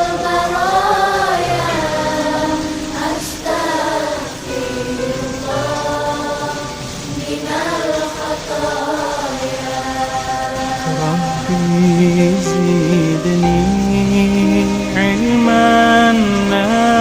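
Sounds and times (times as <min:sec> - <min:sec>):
person singing: 0:00.0 - 0:17.0
steady low tone: 0:10.8 - 0:17.0.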